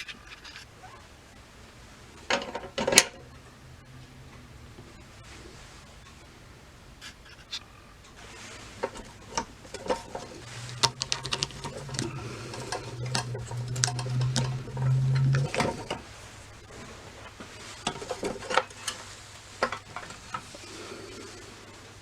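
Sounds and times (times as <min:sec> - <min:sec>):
sharp clicks and light knocks: 0:07.0 - 0:20.7
low hum: 0:07.7 - 0:22.0.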